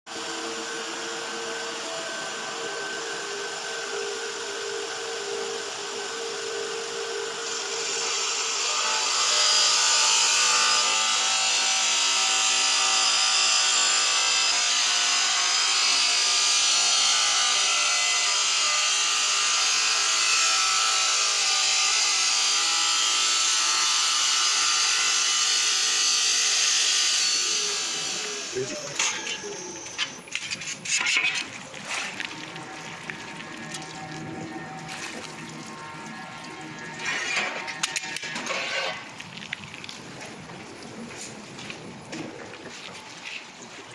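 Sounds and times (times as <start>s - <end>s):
stone saw machine hum: 0.1s - 39.1s
saw blade grinding stone: 7.4s - 39.1s.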